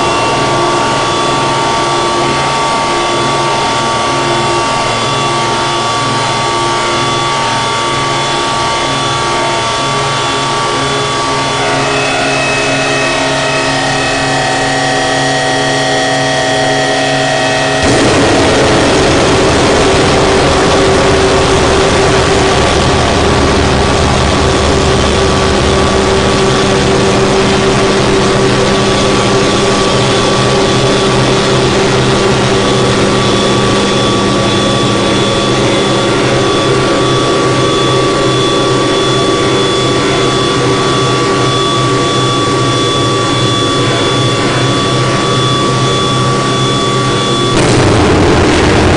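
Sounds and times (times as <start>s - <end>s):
distorted noise drone music: 0.0s - 48.9s
deep rumble: 17.4s - 38.8s, 45.4s - 48.9s.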